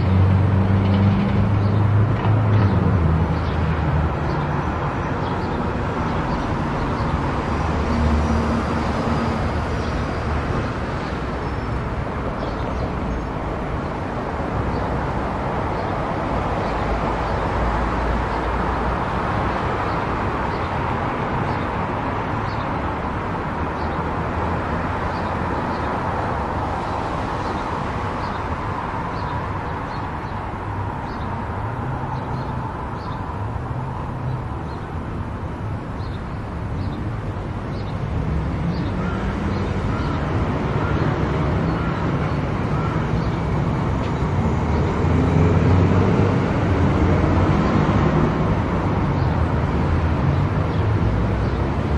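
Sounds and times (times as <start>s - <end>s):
tyre and road noise: 0.0s - 51.9s.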